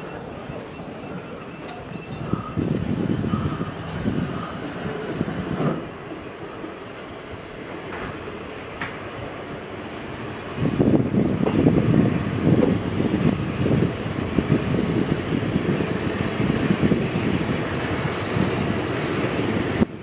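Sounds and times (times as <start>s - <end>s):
train wheels and carriage rattling: 0.0s - 20.0s.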